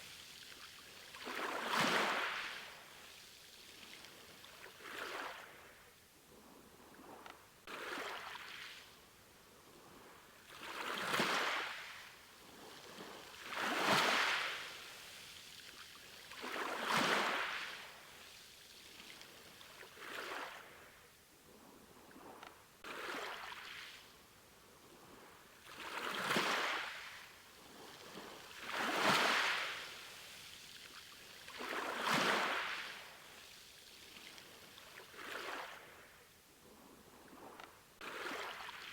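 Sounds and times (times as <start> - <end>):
small ocean waves washing: 10.4 - 18.4, 25.1 - 36.2.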